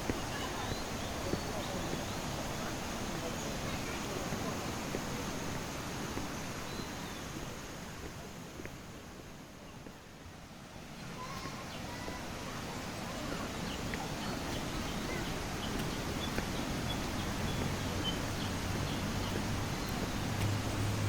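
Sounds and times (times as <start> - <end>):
steady rushing noise: 11.9 - 21.0.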